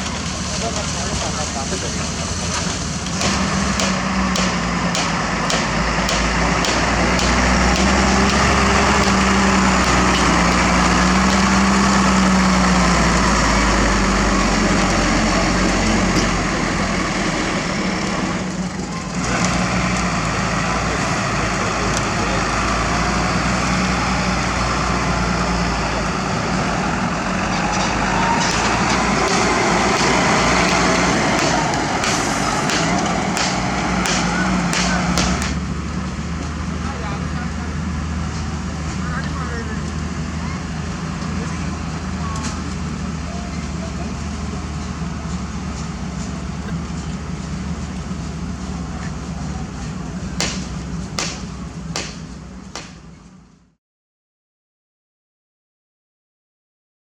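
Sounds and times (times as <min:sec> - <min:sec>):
heavy construction machinery humming: 0:00.0 - 0:53.7.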